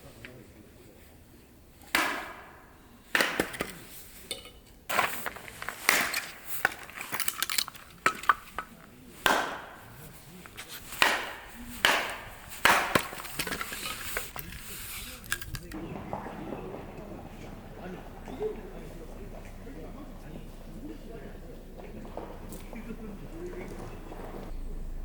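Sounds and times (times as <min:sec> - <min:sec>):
axe chopping firewood: 0:01.8 - 0:03.9, 0:04.9 - 0:15.8.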